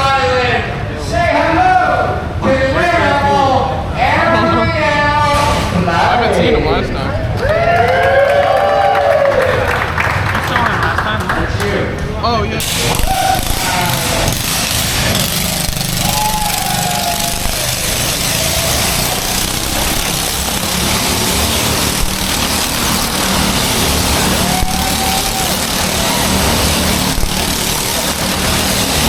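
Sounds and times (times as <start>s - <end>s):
motorcycle engine running: 11.8s - 29.0s.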